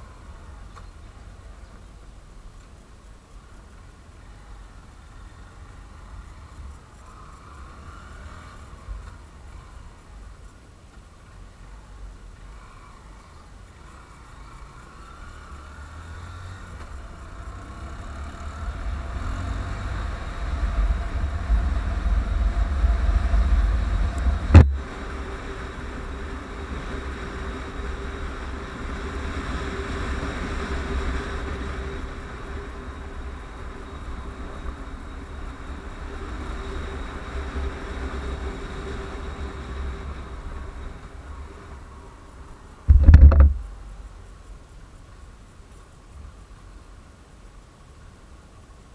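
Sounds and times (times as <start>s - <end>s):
motorcycle engine: 14.1s - 33.2s, 42.9s - 43.8s
wind rumbling on microphone: 16.5s - 44.1s.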